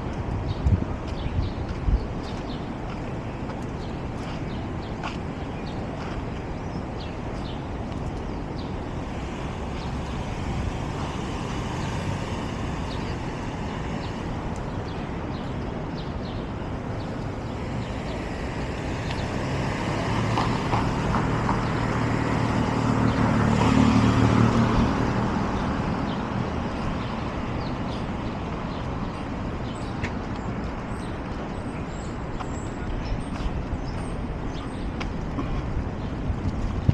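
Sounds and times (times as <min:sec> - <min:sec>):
city street traffic: 0:00.0 - 0:36.9
large vehicle engine passing: 0:18.2 - 0:26.4.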